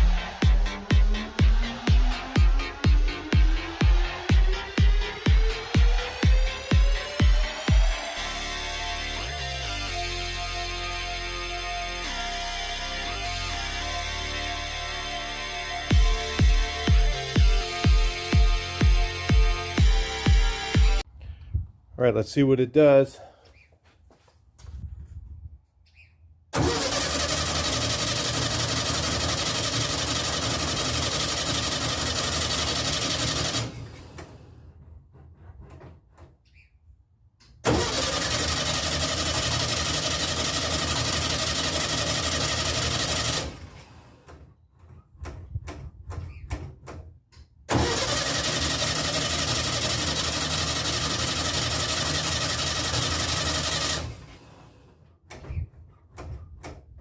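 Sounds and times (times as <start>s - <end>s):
starter cranking engine: 4.0s - 8.3s, 26.6s - 35.5s, 37.6s - 44.4s, 47.7s - 54.9s.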